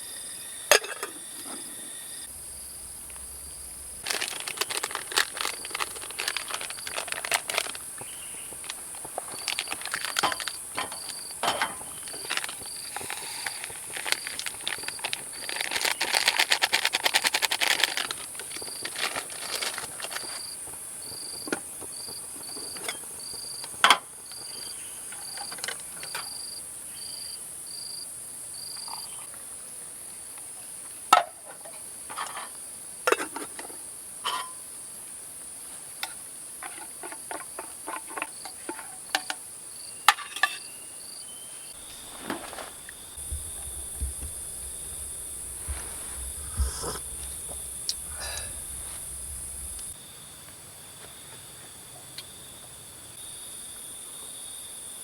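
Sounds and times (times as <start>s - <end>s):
high-pitched insect hiss: 0.0s - 18.9s, 40.6s - 50.3s
cricket chirping: 0.0s - 29.3s, 31.3s - 55.0s.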